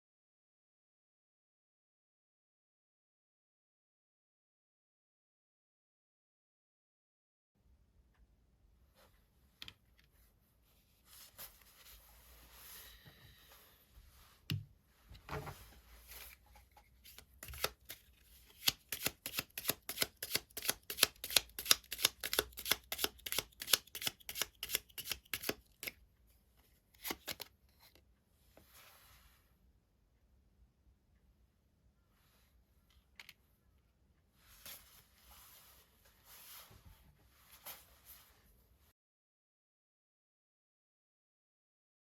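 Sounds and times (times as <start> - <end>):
cards sliding and rustling: 16.0 - 26.0, 27.0 - 28.0
quick card slaps: 18.6 - 25.9.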